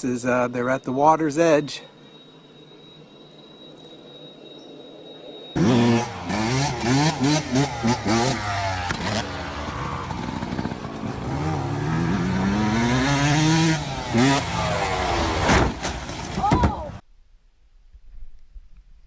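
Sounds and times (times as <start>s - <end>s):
vehicle engine revving: 5.6s - 15.8s.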